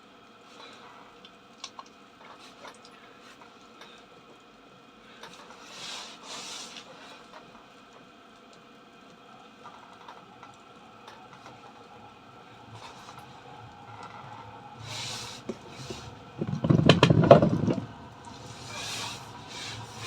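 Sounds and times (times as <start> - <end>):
parking heater humming: 3.0 - 20.0.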